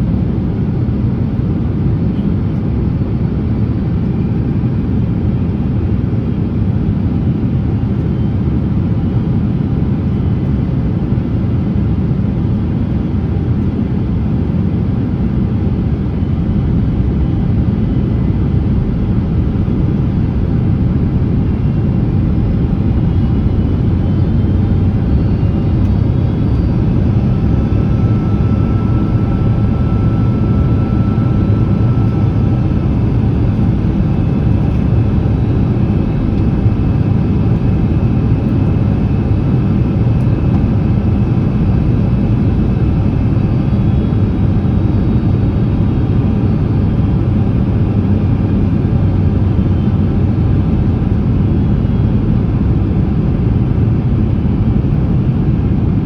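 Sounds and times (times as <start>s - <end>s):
airliner cabin engine roar: 0.0s - 56.0s.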